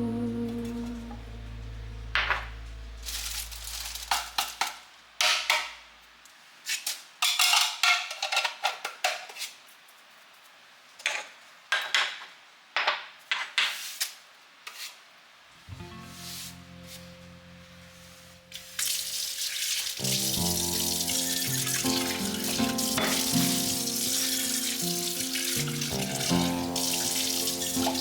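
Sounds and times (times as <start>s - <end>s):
background music: 0.0s - 4.0s, 19.9s - 28.0s
dishes clinking and clattering: 7.2s - 9.3s, 21.1s - 28.0s.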